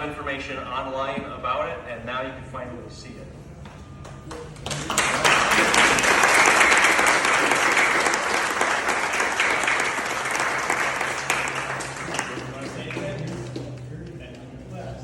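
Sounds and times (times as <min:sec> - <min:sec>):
crowd applauding: 0:04.0 - 0:14.1.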